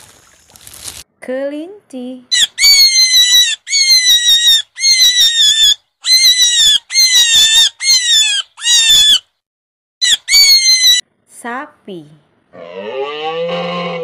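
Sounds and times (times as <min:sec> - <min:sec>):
rabbit squealing: 0:02.3 - 0:09.3, 0:10.0 - 0:11.0, 0:12.6 - 0:14.0.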